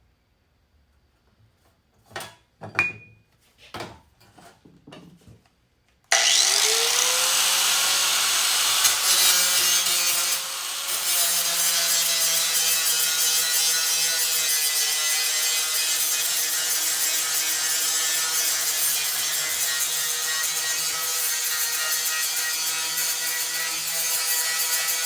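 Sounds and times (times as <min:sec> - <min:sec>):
power tool motor running: 0:06.1 - 0:11.5.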